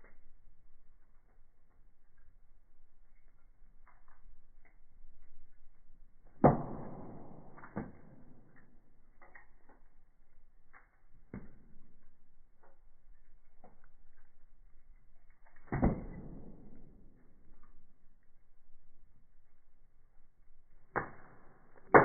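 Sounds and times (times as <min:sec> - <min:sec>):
firewood crackling: 0:00.0 - 0:22.0
loud wood pops: 0:06.4 - 0:08.7, 0:15.6 - 0:17.2, 0:20.9 - 0:22.0.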